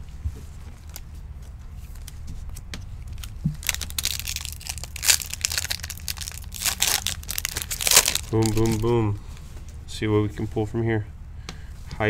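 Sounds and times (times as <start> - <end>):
foil wrapper tearing and crinkling: 3.1 - 8.9.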